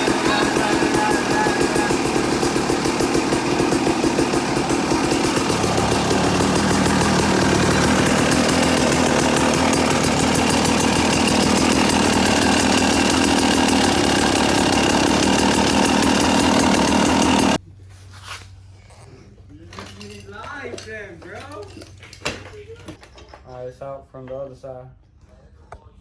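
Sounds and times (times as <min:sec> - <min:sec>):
two-stroke engine running: 0:00.0 - 0:17.6.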